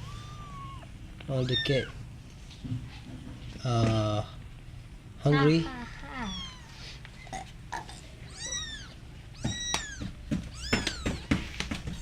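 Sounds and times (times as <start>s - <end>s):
kittens mewing: 0.0s - 2.0s, 5.7s - 12.0s.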